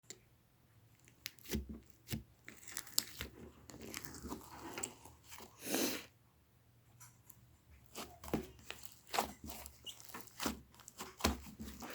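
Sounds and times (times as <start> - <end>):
slime squelching: 0.8 - 6.1, 7.0 - 11.9
slime crackling and popping: 1.2 - 5.0.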